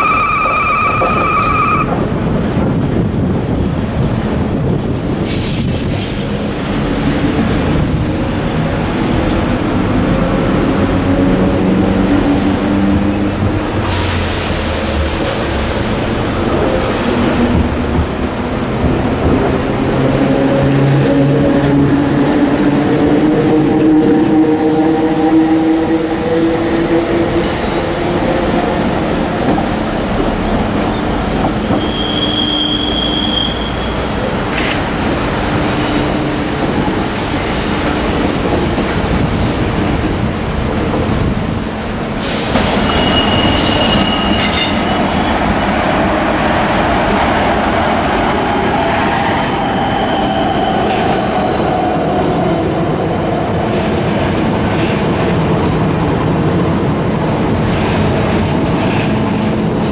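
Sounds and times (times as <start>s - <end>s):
high-pitched wheel squeals: 0.0s - 1.9s, 31.5s - 34.1s, 42.6s - 45.5s
train wheels clattering over track: 4.4s - 23.9s, 26.7s - 32.5s, 53.6s - 59.9s.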